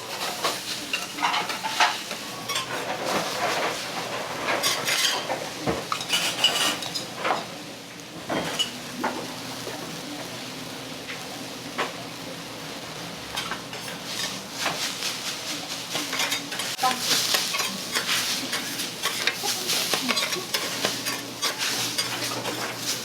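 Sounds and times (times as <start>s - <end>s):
food sizzling: 0.0s - 23.0s
metal spatulas scraping on griddle: 0.1s - 7.5s, 13.4s - 15.3s, 15.9s - 23.0s.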